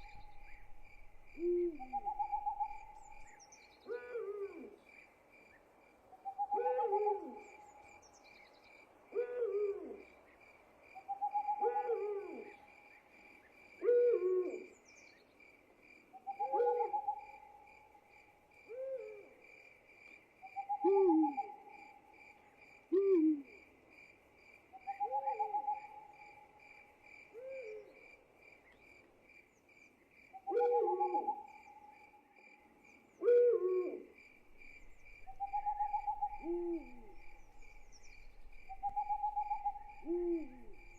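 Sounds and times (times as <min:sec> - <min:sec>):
owls hooting: 0:00.0 - 0:03.3, 0:20.6 - 0:21.6, 0:34.7 - 0:40.9.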